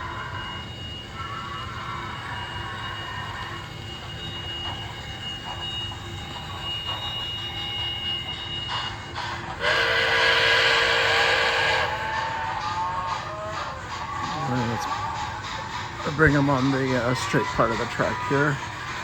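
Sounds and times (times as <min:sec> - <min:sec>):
steam whistle blowing: 0:00.0 - 0:13.7
model trains running on track: 0:00.0 - 0:19.0.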